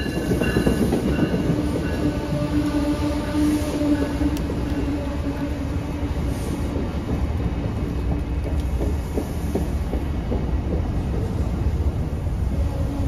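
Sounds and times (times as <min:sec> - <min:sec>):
clacks over rail joints: 0:00.0 - 0:02.8, 0:06.6 - 0:12.2
train wheels rumbling: 0:00.0 - 0:13.0.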